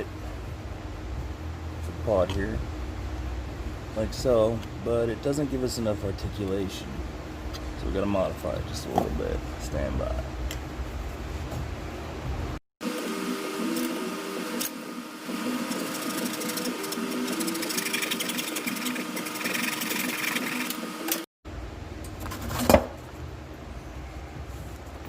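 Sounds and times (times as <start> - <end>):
handheld power tool whine: 12.8 - 21.3.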